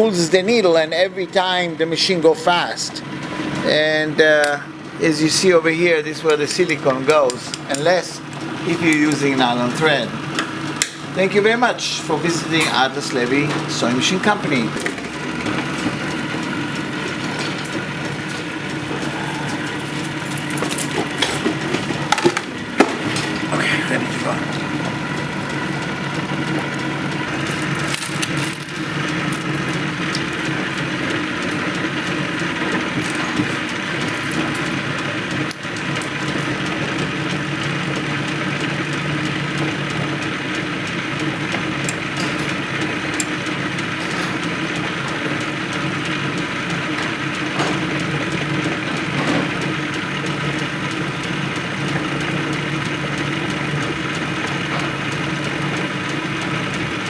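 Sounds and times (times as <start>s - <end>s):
sewing machine humming: 13.6s - 48.9s.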